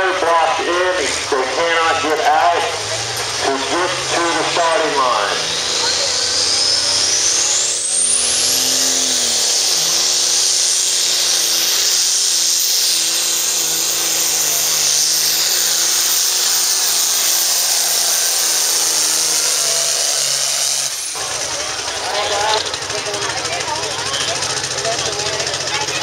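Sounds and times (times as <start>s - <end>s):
diesel tractor engine running hard: 0.0s - 26.0s
turbo whistle: 5.4s - 21.2s.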